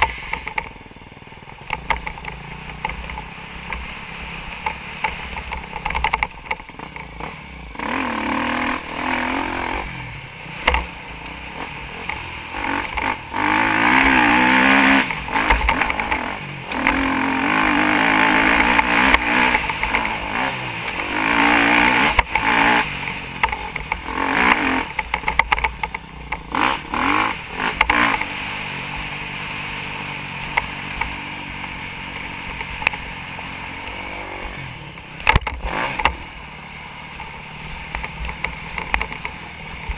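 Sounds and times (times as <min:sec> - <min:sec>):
motocross bike engine revving: 0:00.0 - 0:39.9
camera rattle: 0:04.6 - 0:07.3, 0:24.9 - 0:26.6.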